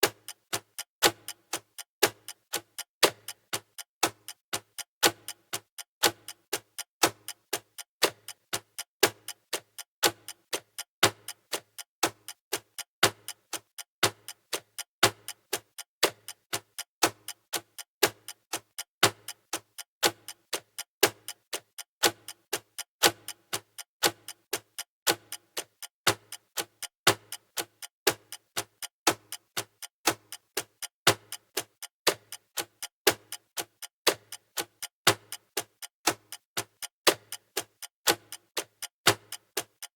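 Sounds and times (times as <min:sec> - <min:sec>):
countdown timer ticking: 0:16.2 - 0:39.9.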